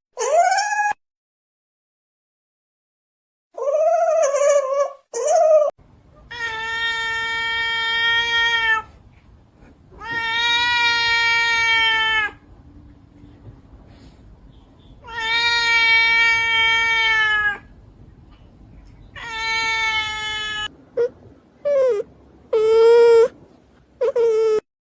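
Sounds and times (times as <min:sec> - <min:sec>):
animal drawn-out cries: 0:00.2 - 0:01.0, 0:03.6 - 0:05.7, 0:10.0 - 0:12.4, 0:15.0 - 0:17.7, 0:19.2 - 0:23.3.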